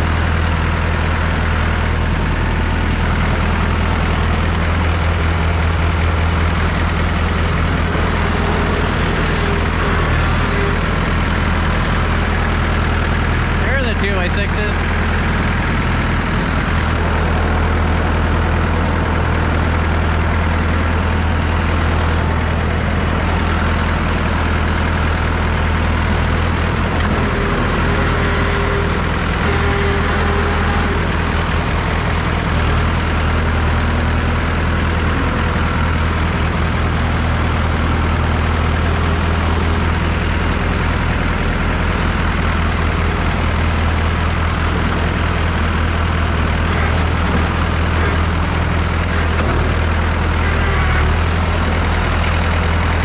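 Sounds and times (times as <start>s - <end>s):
diesel tractor engine humming: 0.0s - 53.0s.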